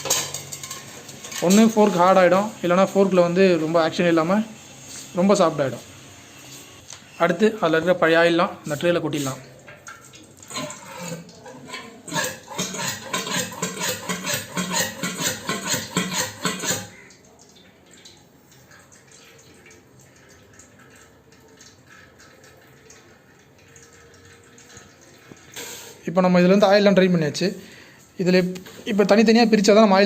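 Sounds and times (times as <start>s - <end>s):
faint dripping: 6.8s - 12.1s, 16.8s - 29.2s
oil glugging into a tray: 9.1s - 26.1s.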